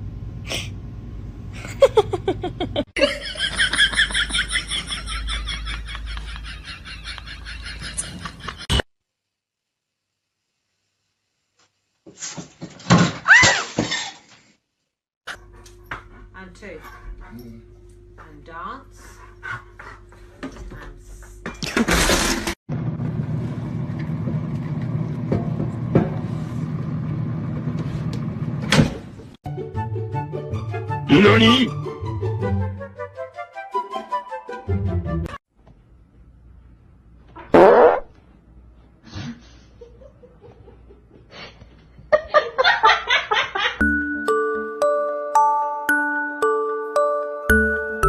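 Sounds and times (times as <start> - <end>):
person laughing: 1.6 - 8.8
chiming glockenspiel tune: 43.8 - 48.0.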